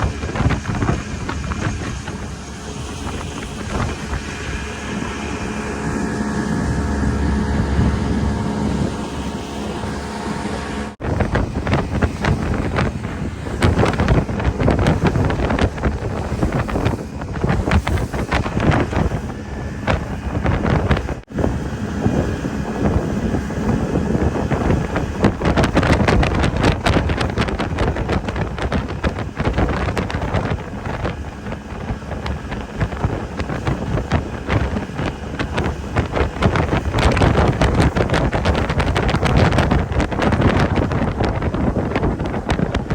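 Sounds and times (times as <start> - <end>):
boat engine: 0.0 - 42.9
rushing water: 0.0 - 42.9
wind buffeting microphone: 0.0 - 42.9.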